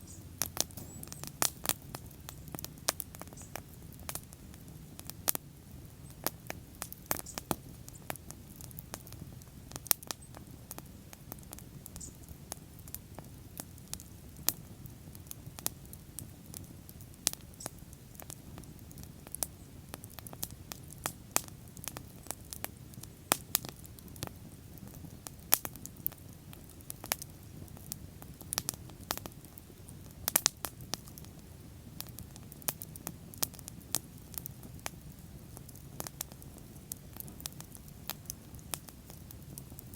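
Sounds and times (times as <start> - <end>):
low rumble of flames: 0.0 - 39.9
wood crackling: 0.4 - 5.4, 32.0 - 39.9.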